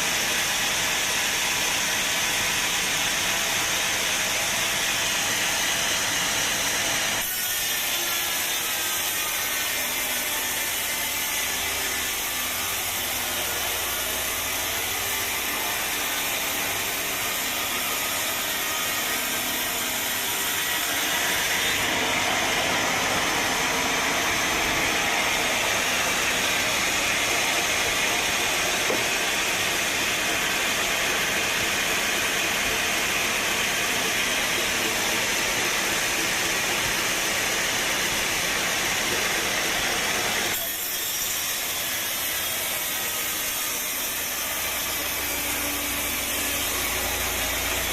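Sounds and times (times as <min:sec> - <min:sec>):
saw cutting through log: 0:00.0 - 0:47.9.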